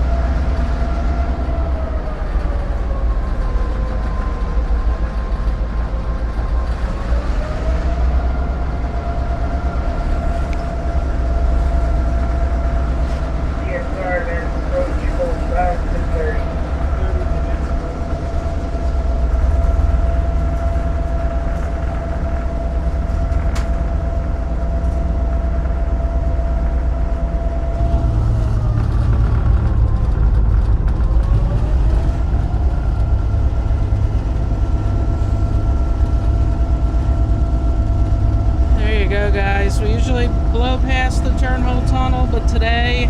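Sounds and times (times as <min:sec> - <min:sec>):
locomotive engine rumbling: 0:00.0 - 0:43.0
thin whine: 0:32.2 - 0:43.0.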